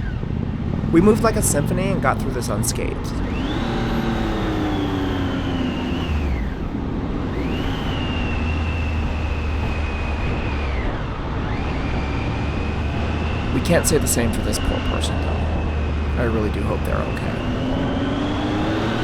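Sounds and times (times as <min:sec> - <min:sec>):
wind and road rumble: 0:00.0 - 0:19.0
motorcycle engine whining: 0:00.6 - 0:19.0.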